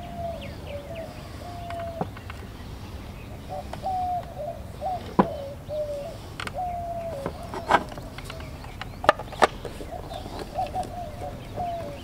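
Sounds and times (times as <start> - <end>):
bird calling: 0.0 - 12.0
hard plastic cover clicking: 6.4 - 12.0.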